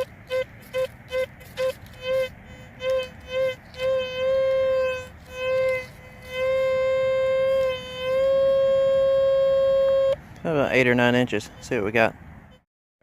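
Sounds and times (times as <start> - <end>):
metal detector electronic tone: 0.0 - 10.2.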